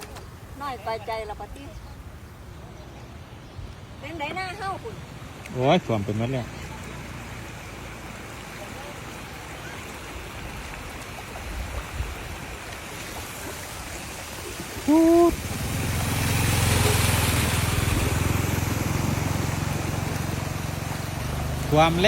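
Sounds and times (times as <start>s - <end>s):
floodwater rushing: 0.0s - 22.0s
vehicle engine passing: 15.3s - 22.0s.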